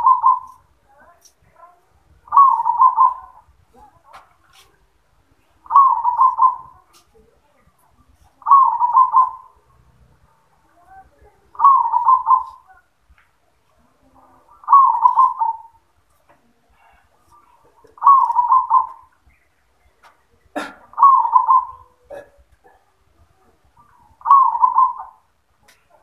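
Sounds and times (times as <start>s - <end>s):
dove cooing: 0.0s - 0.7s, 2.2s - 4.0s, 5.6s - 7.3s, 8.4s - 9.8s, 10.8s - 12.9s, 14.2s - 15.8s, 16.7s - 19.2s, 20.5s - 25.3s.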